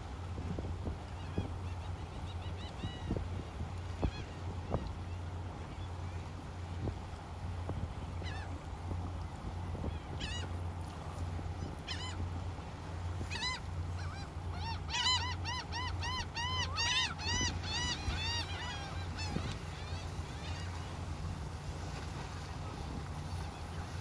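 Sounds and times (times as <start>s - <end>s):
bird honking calls: 13.2s - 21.2s.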